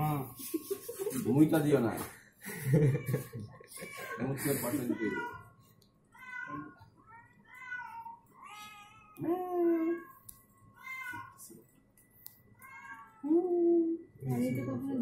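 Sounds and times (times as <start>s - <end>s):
cat meowing: 2.8s - 5.5s, 6.2s - 10.2s, 10.8s - 11.5s, 12.6s - 13.4s.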